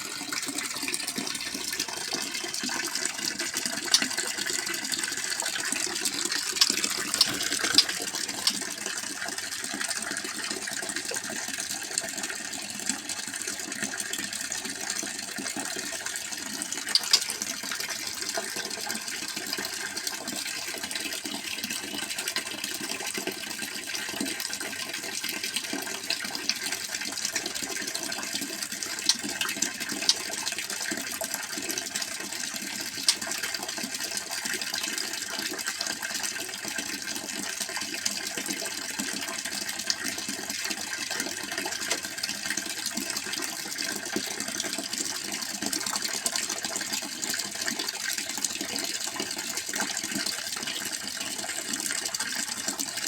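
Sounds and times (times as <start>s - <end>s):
running water rushing: 0.0s - 31.3s
sharp clicks: 6.3s - 8.6s, 16.9s - 17.4s.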